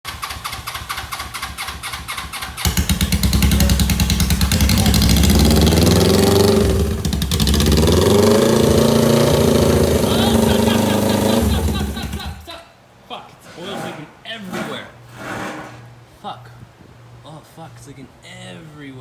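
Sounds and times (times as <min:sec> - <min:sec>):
motorcycle engine cranking: 0:00.1 - 0:12.5
motorcycle engine revving: 0:00.1 - 0:12.5.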